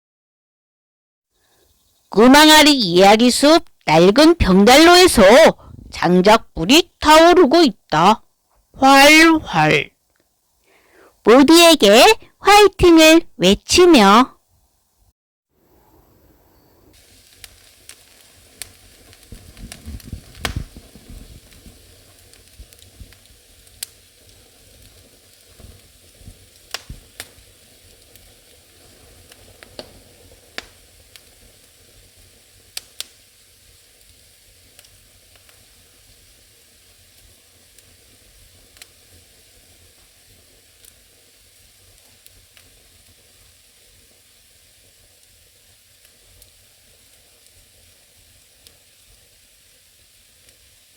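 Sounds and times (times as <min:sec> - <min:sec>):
fire hissing: 0:01.4 - 0:13.2, 0:16.9 - 0:50.9
burning logs crackling and popping: 0:17.0 - 0:50.9.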